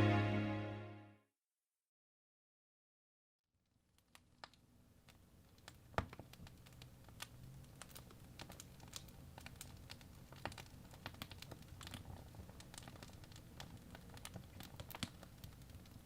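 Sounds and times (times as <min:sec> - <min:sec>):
wood fire crackling: 0:03.7 - 0:16.0
low rumble of flames: 0:04.8 - 0:16.0.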